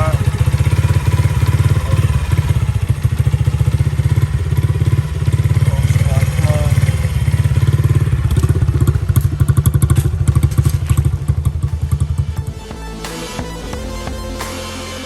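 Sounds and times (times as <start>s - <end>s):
dirt bike engine running: 0.0s - 14.8s
background music: 10.0s - 15.0s.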